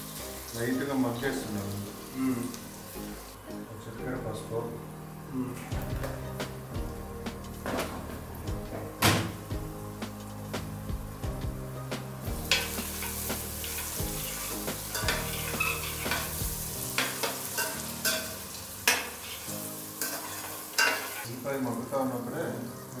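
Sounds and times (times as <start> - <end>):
onions sizzling in hot oil: 0.0 - 3.4, 9.2 - 23.0
steel spoon scraping a pan: 12.5 - 21.3.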